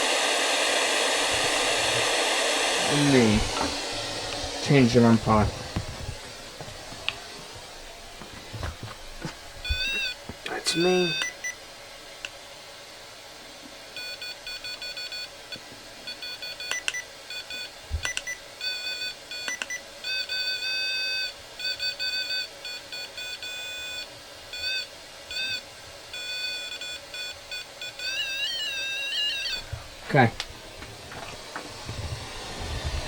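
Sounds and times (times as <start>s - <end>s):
electronic beeping: 9.6s - 11.5s, 26.2s - 29.7s
warbling electronic tone: 28.1s - 29.7s.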